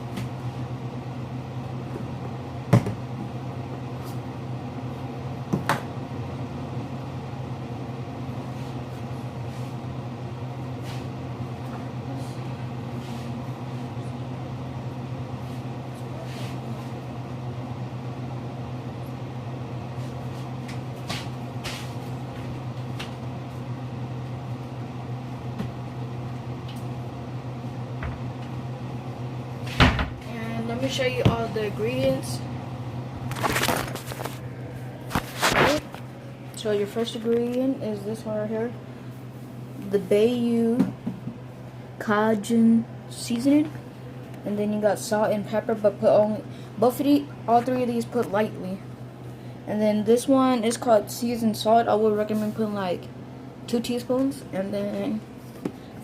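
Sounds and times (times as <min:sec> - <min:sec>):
low kitchen hum: 0:00.0 - 0:56.0.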